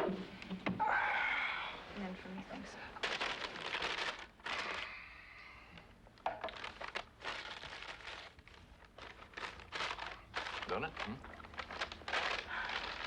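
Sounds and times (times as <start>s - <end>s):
paper bag crinkling: 3.0s - 4.9s, 6.4s - 13.0s.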